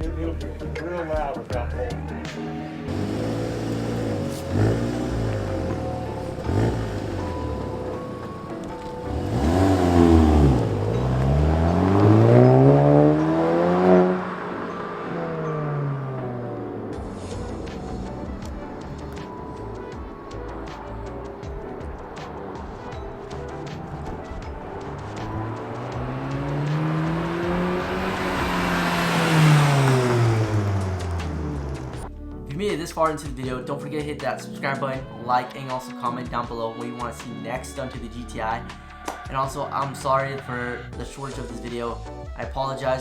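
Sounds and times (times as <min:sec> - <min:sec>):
car engine revving: 0:02.9 - 0:32.1.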